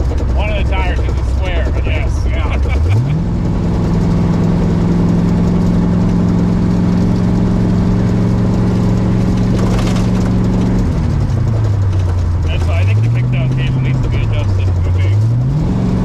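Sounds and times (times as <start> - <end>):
car engine and exhaust droning: 0.0 - 16.0.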